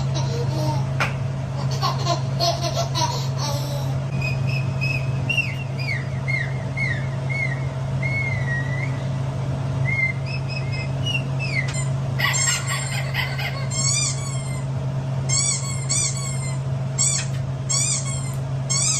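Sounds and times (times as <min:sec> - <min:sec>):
steady low hum: 0:00.0 - 0:18.9
long wavering whistle: 0:04.1 - 0:09.2, 0:09.8 - 0:11.7
squeaky bird calls: 0:15.3 - 0:18.9.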